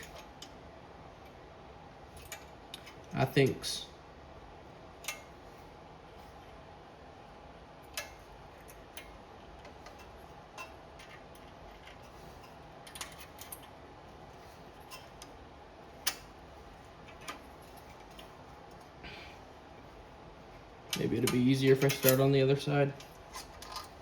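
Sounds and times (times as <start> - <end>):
faint steady hum: 0.0 - 24.0
small metal parts clicking: 7.9 - 13.8, 20.9 - 22.3, 23.0 - 24.0.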